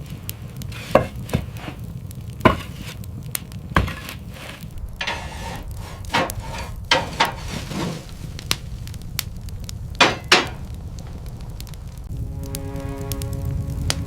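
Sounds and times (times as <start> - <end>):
low rumble: 0.0 - 14.0
sharp knocks: 3.8 - 7.9, 10.0 - 10.7.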